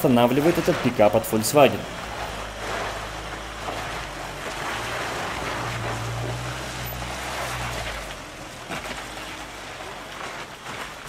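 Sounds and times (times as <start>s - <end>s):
vehicle engine pulling uphill: 0.0s - 11.0s.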